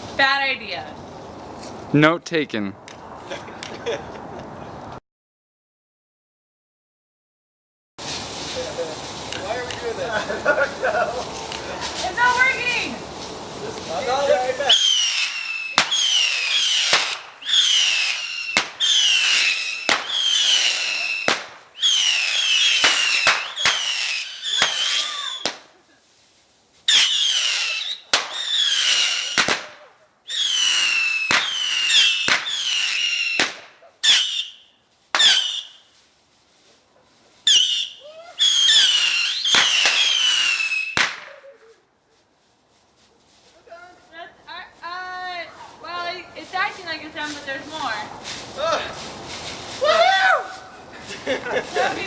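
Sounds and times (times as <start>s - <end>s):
bottle rocket falling whistle: 14.7s - 25.6s, 26.9s - 29.6s, 30.3s - 35.9s, 37.5s - 41.2s.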